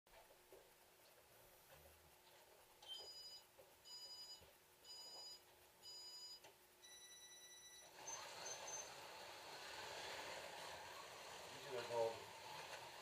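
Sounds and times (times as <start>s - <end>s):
short countdown beeps: 2.9s - 7.9s.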